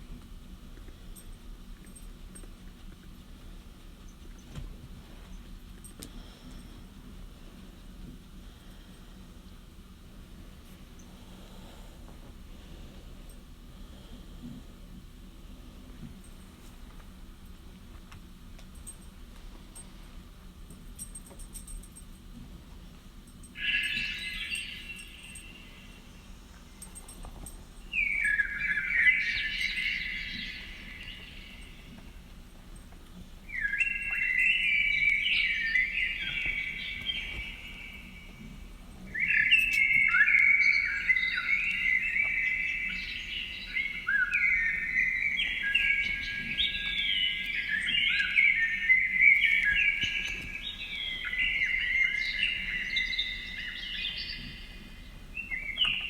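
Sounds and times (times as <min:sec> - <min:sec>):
birds chirping and twittering: 0:23.4 - 0:56.0.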